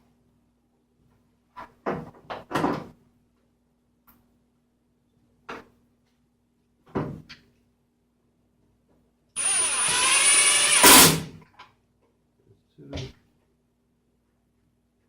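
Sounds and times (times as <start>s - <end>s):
power drill driving a screw: 9.4s - 11.4s.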